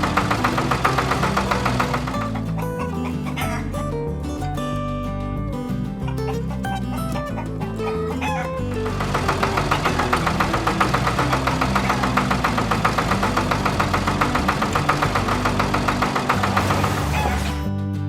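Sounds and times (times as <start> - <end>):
cartoon tractor engine putter: 0.0 - 2.6, 8.3 - 17.6
background music with bass line: 0.0 - 18.0.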